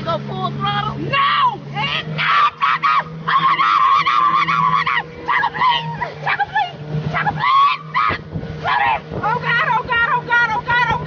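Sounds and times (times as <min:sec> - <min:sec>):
motorboat engine drone: 0:00.0 - 0:11.0
people screaming: 0:01.1 - 0:09.1.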